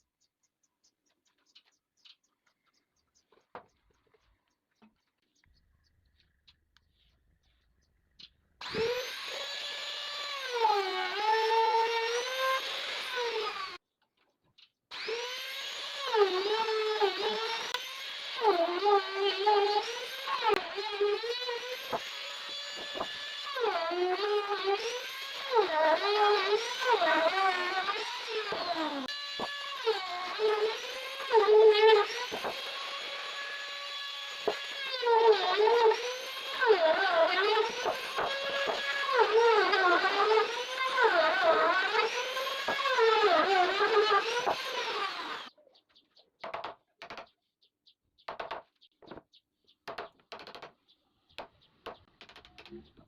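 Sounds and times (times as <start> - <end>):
electric power tool motor whine: 8.6 - 13.8, 14.9 - 45.5
sharp knocks: 48.3 - 49.2.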